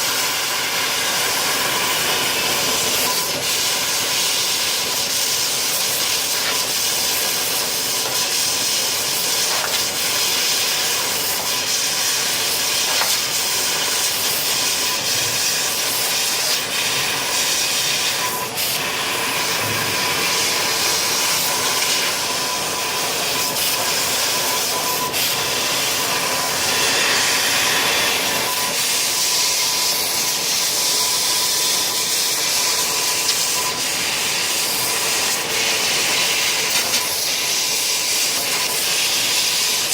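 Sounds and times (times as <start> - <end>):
loud hiss of gas and air: 0.0 - 39.9.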